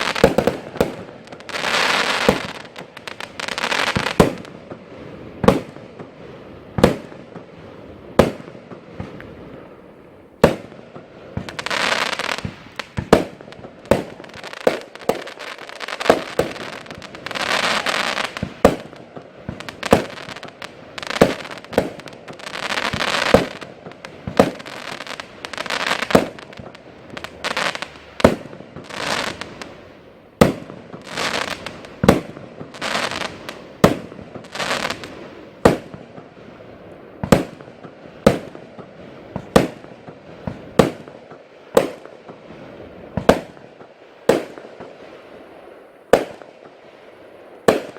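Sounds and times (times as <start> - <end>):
fireworks bangs: 0.0 - 47.9
fireworks hissing crackle: 0.0 - 47.9.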